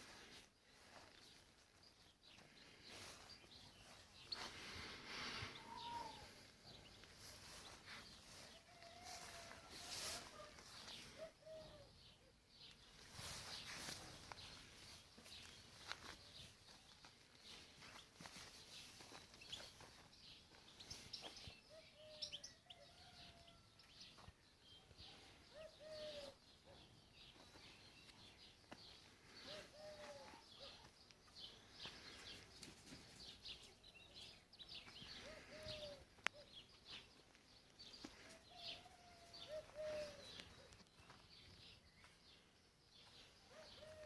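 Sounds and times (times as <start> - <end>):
lower arched bird call: 5.5 - 6.4.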